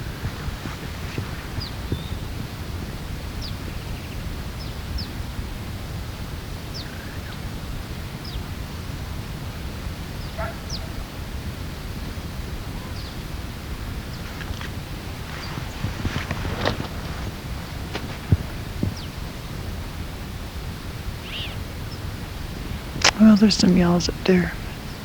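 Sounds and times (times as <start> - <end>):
steady low rumble: 0.0 - 25.0
high downslurred bird calls: 21.2 - 22.1.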